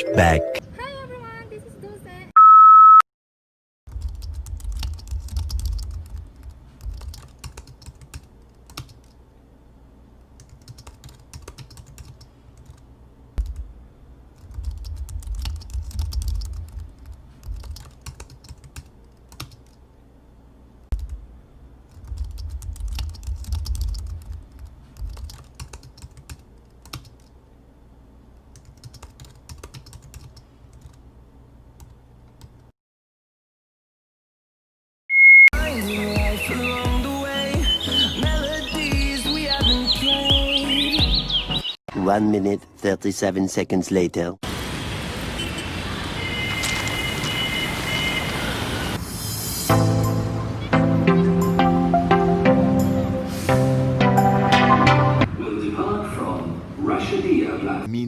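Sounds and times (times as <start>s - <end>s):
short loud beep: 2.4s - 3.0s, 35.1s - 35.5s
computer keyboard typing: 3.9s - 9.2s, 10.4s - 12.8s, 14.4s - 19.8s, 21.9s - 27.3s, 28.5s - 31.0s.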